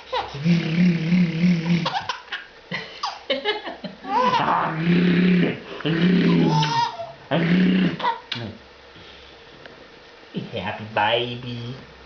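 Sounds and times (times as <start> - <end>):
baby laughing: 1.7 - 4.5, 6.3 - 7.2
baby gliding cries: 4.1 - 4.6, 6.3 - 7.2.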